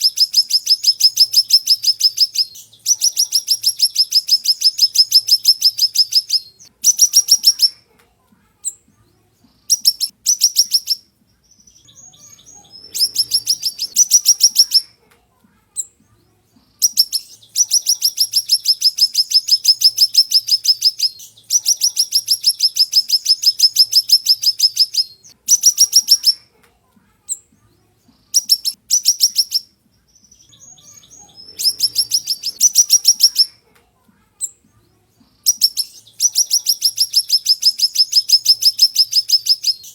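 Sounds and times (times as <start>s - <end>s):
songbird singing sharp high notes: 0.0s - 7.8s, 11.6s - 14.9s, 16.8s - 26.4s, 28.4s - 33.6s, 35.5s - 39.9s.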